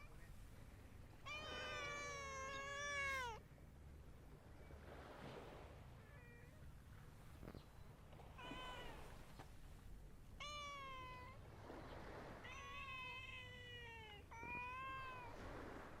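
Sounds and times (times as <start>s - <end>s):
cat meowing: 1.2s - 3.4s, 8.4s - 9.2s, 10.4s - 11.4s, 12.4s - 15.4s.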